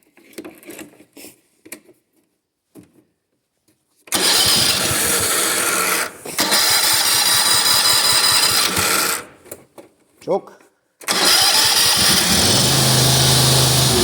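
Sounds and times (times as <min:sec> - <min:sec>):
lawnmower engine running: 0:04.1 - 0:09.4, 0:11.1 - 0:14.0.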